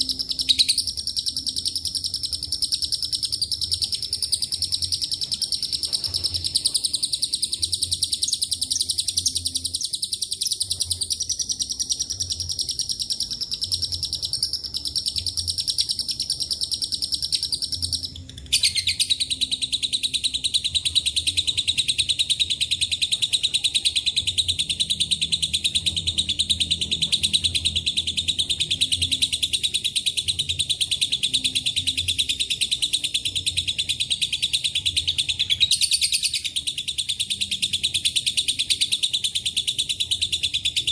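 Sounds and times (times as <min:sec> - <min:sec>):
lovebird trilling: 0:00.0 - 0:40.9.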